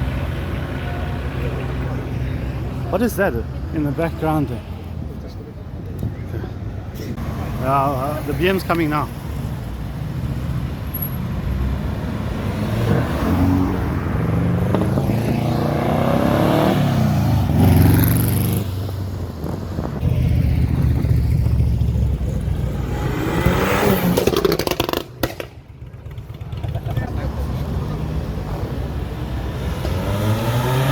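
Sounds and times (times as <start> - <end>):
car engine revving hard: 11.9 - 18.7, 22.8 - 25.1, 29.5 - 30.9.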